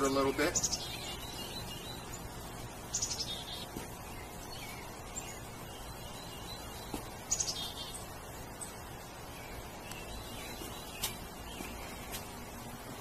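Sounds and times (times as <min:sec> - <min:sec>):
faint bird chirps: 0:00.0 - 0:13.0
songbird singing: 0:00.0 - 0:13.0.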